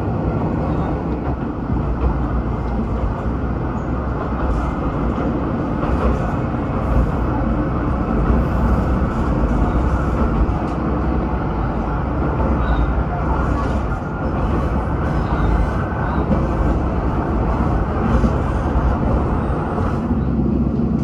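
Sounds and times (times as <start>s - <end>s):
railcar engine rumble: 0.0s - 21.0s.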